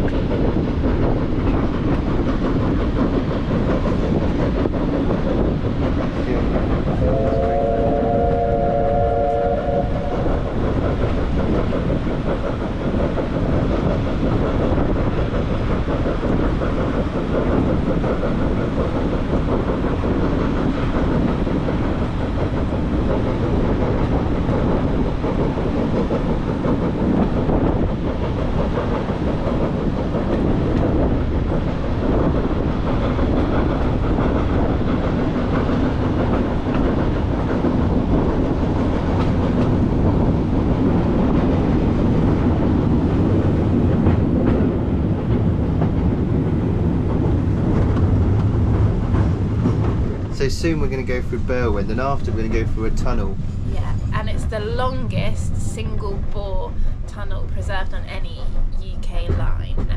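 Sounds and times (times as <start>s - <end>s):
train wheels clattering on rails: 0.0s - 59.9s
locomotive whistle: 7.0s - 10.3s.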